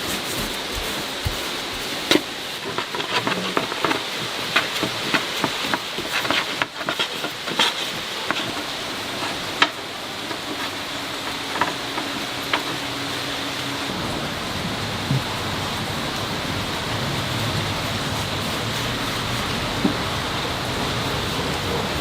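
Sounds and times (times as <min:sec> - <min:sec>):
steady hiss: 0:00.0 - 0:22.0
kitchen utensils tapping and clicking: 0:02.1 - 0:12.8.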